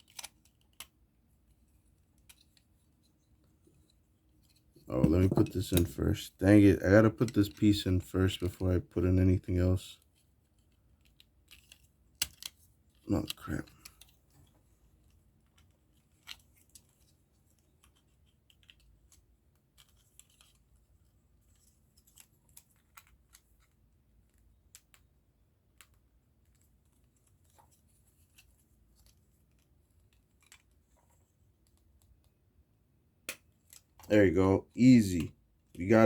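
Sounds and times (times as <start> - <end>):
small plastic parts clicking: 0.0 - 3.2, 10.0 - 20.9, 21.5 - 32.3.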